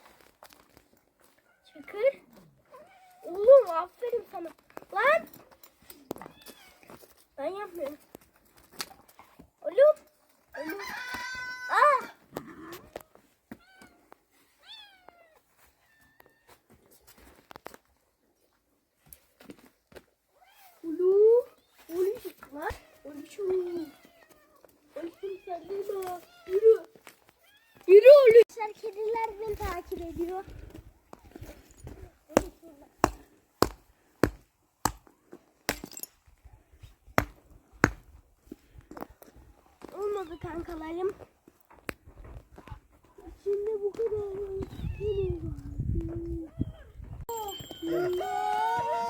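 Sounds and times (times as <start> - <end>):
footsteps on hard ground: 3.4 - 18.0, 21.6 - 36.1, 36.8 - 46.2.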